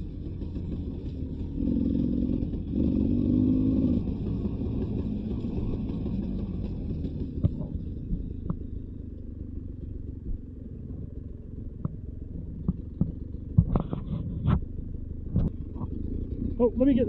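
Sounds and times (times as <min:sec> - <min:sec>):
dirt bike engine running: 0:00.0 - 0:17.0
sharp clicks and knocks: 0:11.7 - 0:16.0.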